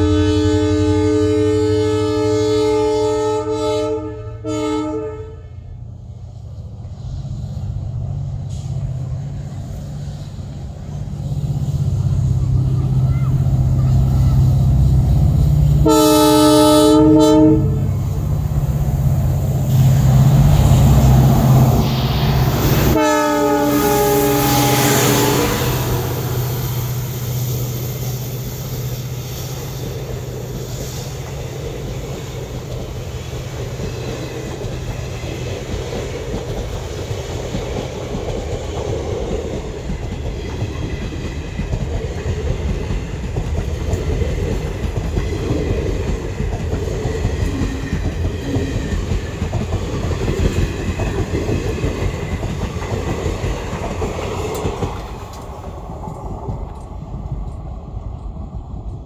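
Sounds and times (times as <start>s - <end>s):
locomotive horn: 0.0s - 5.8s, 15.8s - 18.0s, 22.8s - 26.3s
diesel engine drone: 5.6s - 30.5s.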